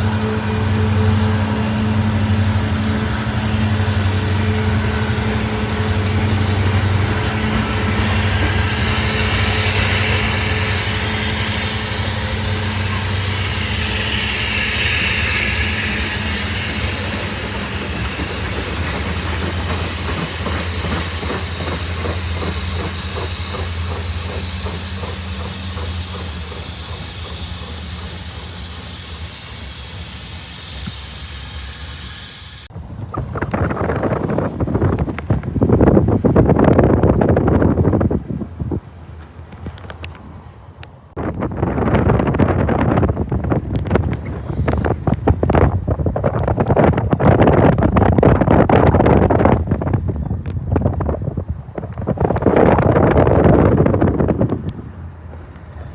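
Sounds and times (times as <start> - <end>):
locomotive engine humming: 0.0 - 55.9
train rushing past: 0.0 - 55.9
train wheels clicking on rail joints: 0.0 - 55.9.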